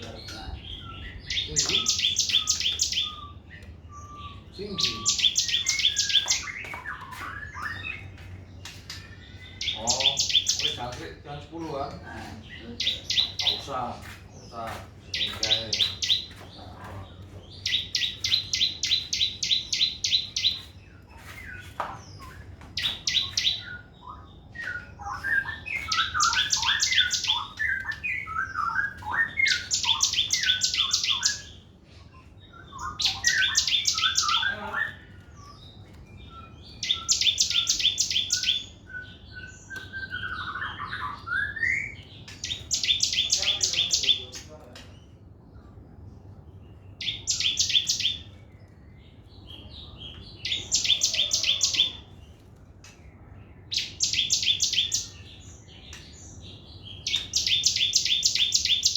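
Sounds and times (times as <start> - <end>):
songbird trilling: 0.0 - 31.6, 32.4 - 35.7, 36.3 - 44.6, 47.0 - 48.3, 49.6 - 52.1, 53.6 - 58.9
bird chirping: 0.0 - 58.9.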